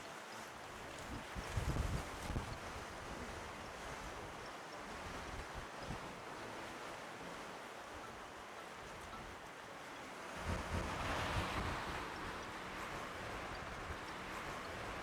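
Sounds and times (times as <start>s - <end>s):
wind rumbling on microphone: 1.0s - 3.1s.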